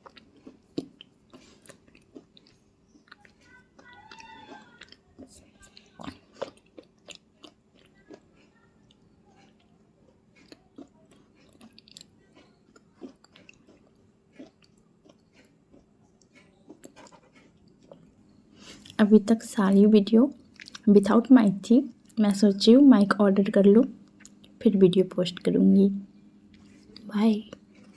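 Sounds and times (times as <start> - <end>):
person chewing crunchy food: 0.0 - 19.0, 20.4 - 20.8, 26.4 - 27.9.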